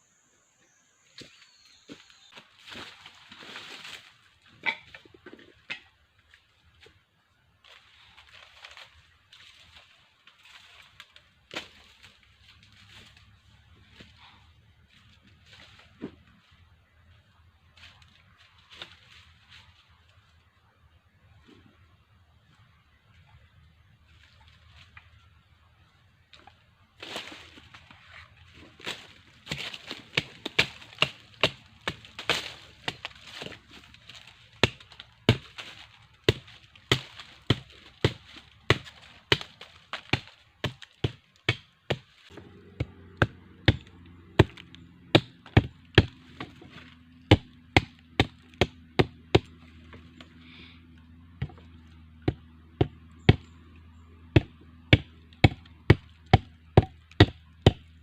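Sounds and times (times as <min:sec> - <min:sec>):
low steady hum: 0:00.0 - 0:58.0
blade chopping wood: 0:28.8 - 0:50.3, 0:51.3 - 0:53.5, 0:54.3 - 0:58.0.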